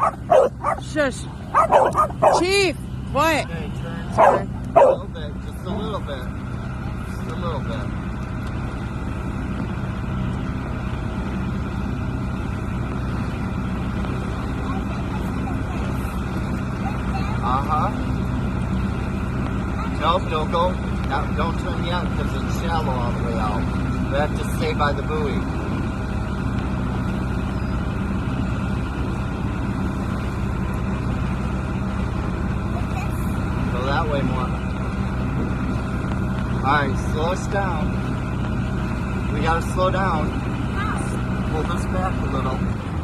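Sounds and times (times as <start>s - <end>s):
water noise: 0.0s - 7.3s
motorboat engine humming: 0.0s - 43.0s.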